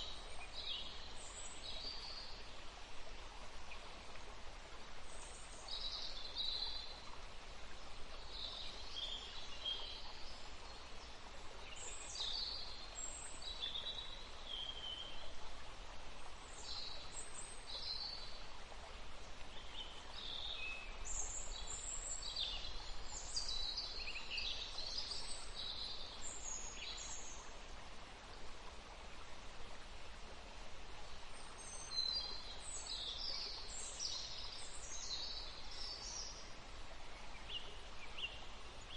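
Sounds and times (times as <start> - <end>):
steady background hiss: 0.0 - 38.9
songbirds singing and chirping: 31.4 - 38.9.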